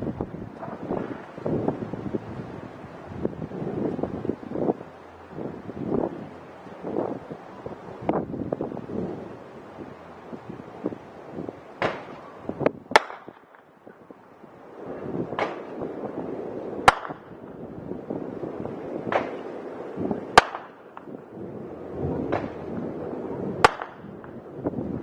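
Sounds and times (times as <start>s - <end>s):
fireworks bangs: 0.0s - 1.9s, 11.7s - 14.2s, 14.8s - 25.0s.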